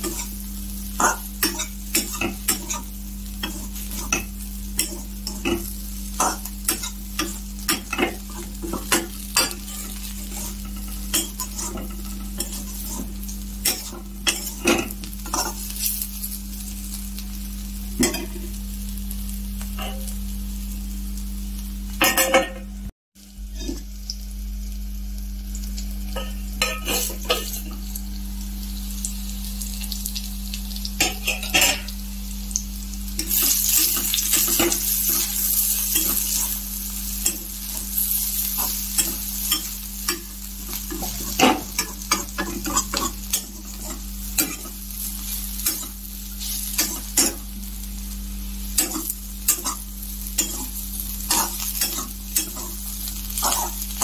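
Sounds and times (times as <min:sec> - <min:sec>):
food sizzling in oil: 0:00.0 - 0:54.0
spatula scraping and clinking pan: 0:26.2 - 0:27.6, 0:50.4 - 0:50.7.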